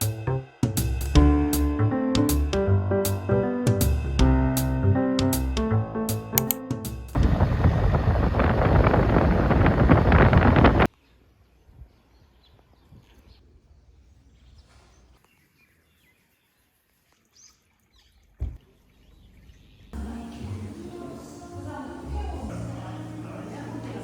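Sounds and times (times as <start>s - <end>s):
loud rushing noise: 7.2s - 10.9s.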